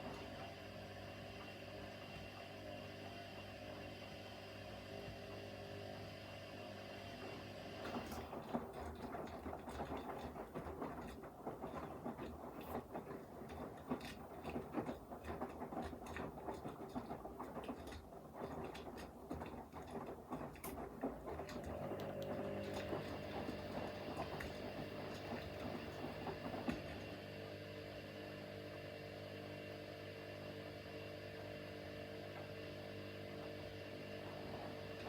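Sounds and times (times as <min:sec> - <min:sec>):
washing machine hum: 0:00.0 - 0:35.0
water sloshing in drum: 0:08.0 - 0:27.0.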